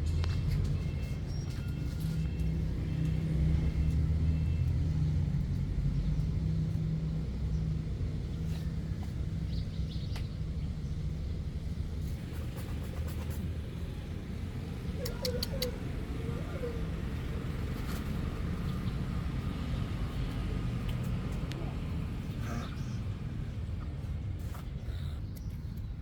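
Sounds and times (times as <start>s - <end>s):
faint clicks: 15.0s - 15.8s.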